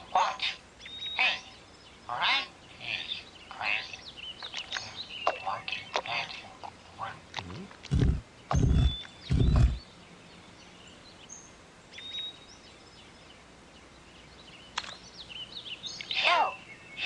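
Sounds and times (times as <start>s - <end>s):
bird chirps: 0.0s - 6.4s, 7.4s - 17.0s
loud warbling bird call: 7.9s - 9.8s.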